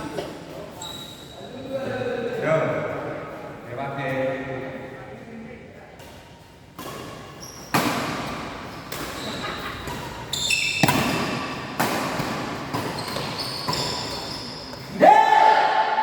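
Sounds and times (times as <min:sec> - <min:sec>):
shoes squeaking on floor: 0:00.0 - 0:01.7, 0:06.1 - 0:15.0
rackets hitting shuttlecock: 0:06.0 - 0:15.0.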